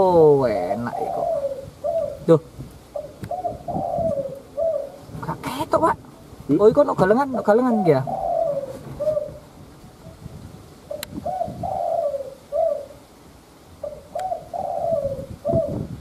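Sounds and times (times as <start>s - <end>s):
dove cooing: 0.0s - 6.3s, 7.2s - 13.2s, 13.8s - 16.0s
faint clicks: 11.0s - 11.2s, 14.1s - 14.3s.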